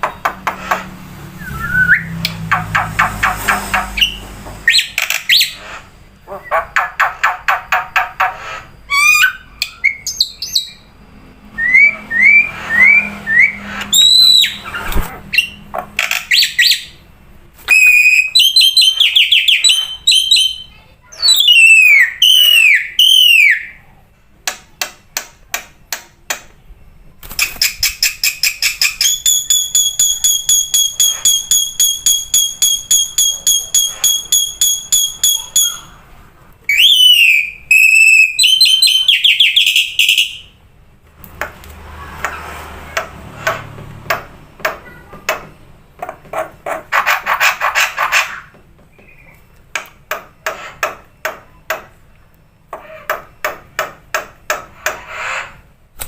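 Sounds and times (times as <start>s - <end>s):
bird singing varied song: 8.8s - 11.0s, 11.6s - 17.0s, 17.7s - 23.8s, 36.7s - 40.6s, 48.9s - 49.5s.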